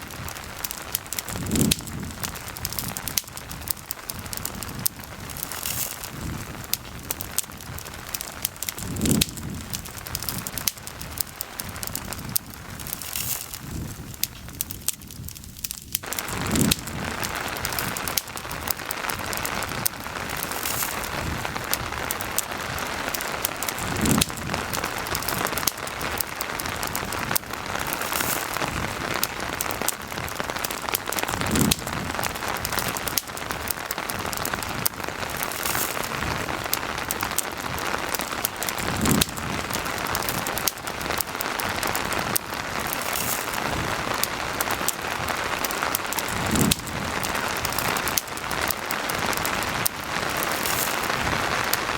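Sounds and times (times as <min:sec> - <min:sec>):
campfire crackling: 0:00.0 - 0:51.9
steady rain: 0:00.0 - 0:51.9.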